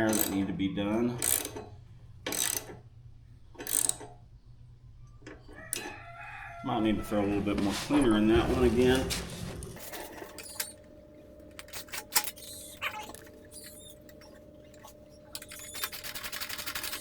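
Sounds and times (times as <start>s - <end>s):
hand tools clicking and tapping: 0.0s - 0.4s, 1.2s - 1.7s, 11.5s - 17.0s
small metal ticks: 0.0s - 0.4s.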